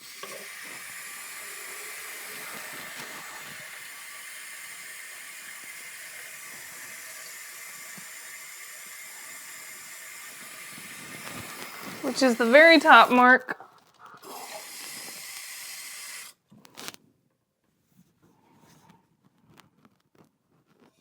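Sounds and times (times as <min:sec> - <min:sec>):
water running into canister: 0:00.0 - 0:13.6, 0:14.2 - 0:16.4.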